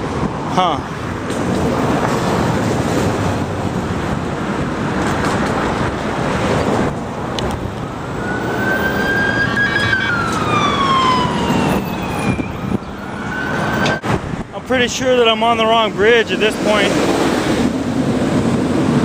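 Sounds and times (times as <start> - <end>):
street traffic: 0.0 - 19.0
emergency siren wailing: 7.8 - 14.0.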